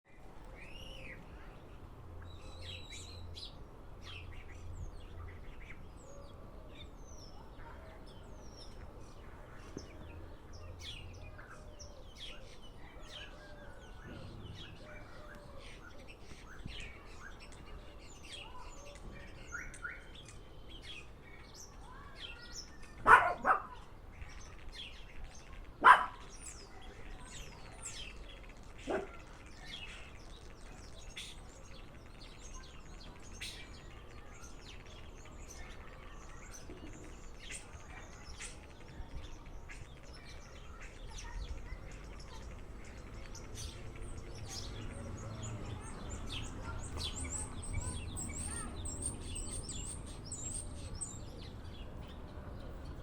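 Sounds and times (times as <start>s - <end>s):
loud sharp bird calls: 10.6s - 51.8s.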